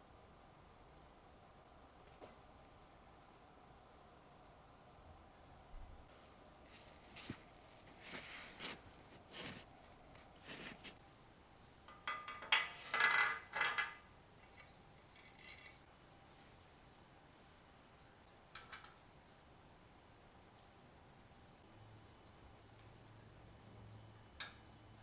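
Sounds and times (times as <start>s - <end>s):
metal tools clinking and scraping: 11.9s - 15.8s.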